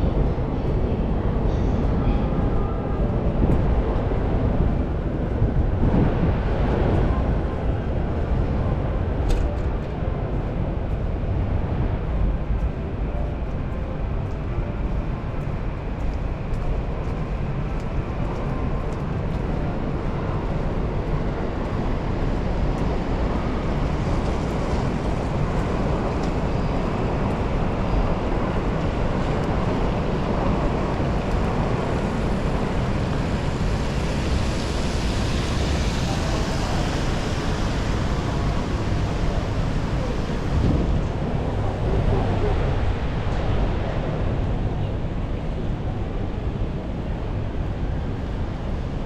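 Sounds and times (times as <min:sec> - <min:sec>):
city street noise: 0:00.0 - 0:49.0
wind buffeting microphone: 0:00.0 - 0:49.0
steady rain: 0:10.3 - 0:44.8.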